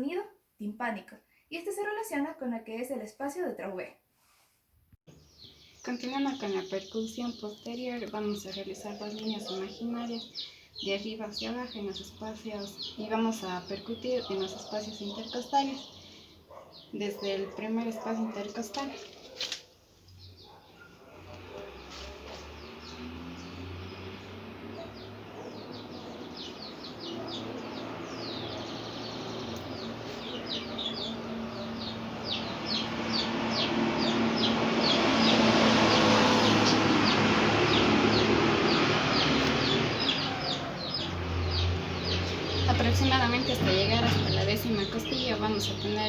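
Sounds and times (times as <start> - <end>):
background noise: 0.0 - 23.7
birds chirping rapidly: 5.1 - 46.0.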